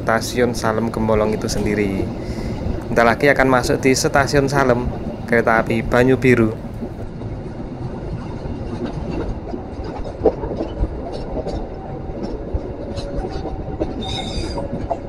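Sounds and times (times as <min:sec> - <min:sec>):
train coach rumble: 0:00.0 - 0:15.0
wheel squealing: 0:08.7 - 0:15.0.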